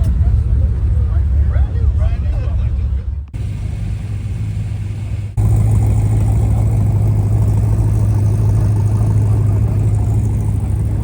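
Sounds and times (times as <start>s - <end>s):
car engine running: 3.4s - 11.0s.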